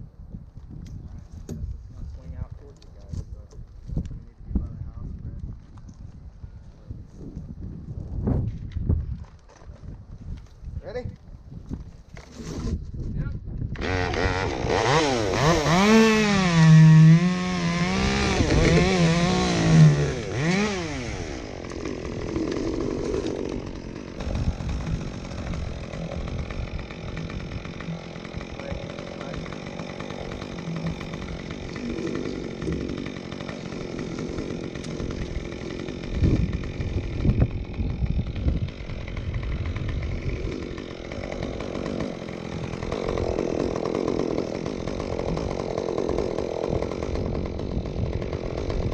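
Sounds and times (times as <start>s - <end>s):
chainsaw cutting wood: 11.7s - 12.8s, 13.7s - 48.9s.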